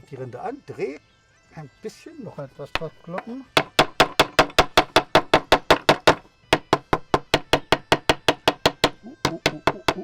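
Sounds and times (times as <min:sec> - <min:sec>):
knife handle tapping bark: 0:02.8 - 0:06.2, 0:06.8 - 0:10.0.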